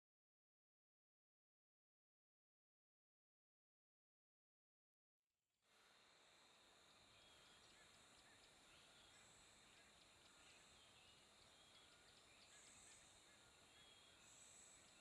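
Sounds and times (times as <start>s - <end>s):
steady hiss: 5.7s - 15.0s
bird or insect chirps: 5.9s - 15.0s.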